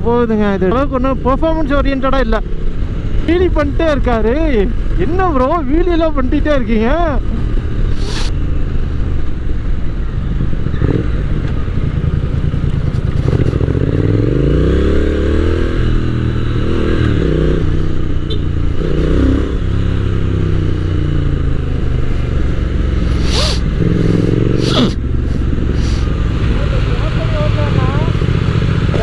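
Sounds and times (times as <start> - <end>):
road and wind noise: 0.0 - 29.0
motorcycle engine accelerating: 6.8 - 29.0.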